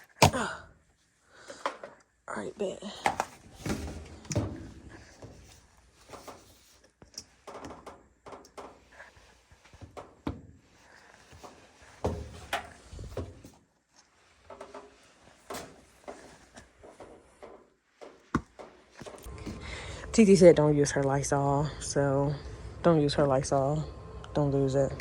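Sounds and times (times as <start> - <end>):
knocks and clatter of handling: 1.4 - 2.0, 3.0 - 19.7.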